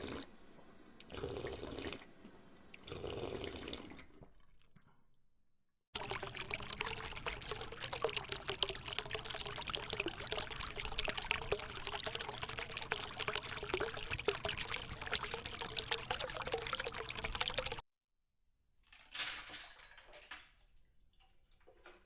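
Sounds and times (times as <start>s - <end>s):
water pouring in a stream: 6.0s - 17.8s.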